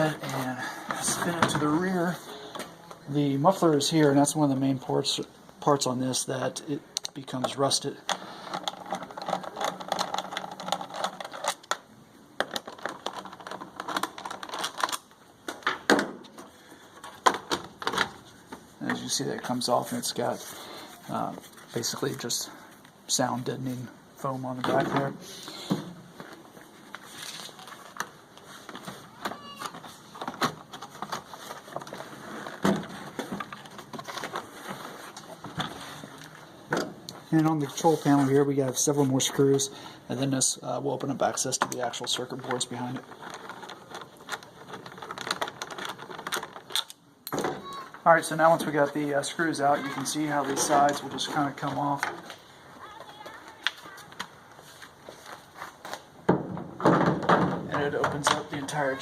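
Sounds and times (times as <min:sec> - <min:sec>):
plastic parts clicking and rattling: 0:07.0 - 0:20.1, 0:24.6 - 0:37.9, 0:41.2 - 0:54.4, 0:56.3 - 0:59.0.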